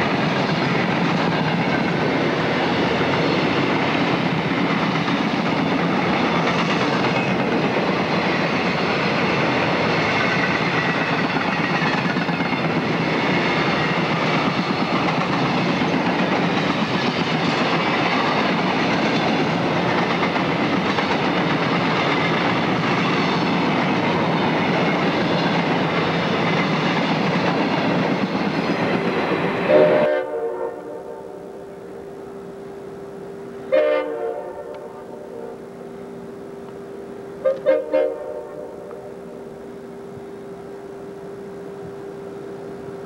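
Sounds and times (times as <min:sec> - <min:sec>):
freight train wheels rushing: 0:00.0 - 0:43.0
distant locomotive horn: 0:29.7 - 0:32.4, 0:33.6 - 0:36.2, 0:37.0 - 0:39.5.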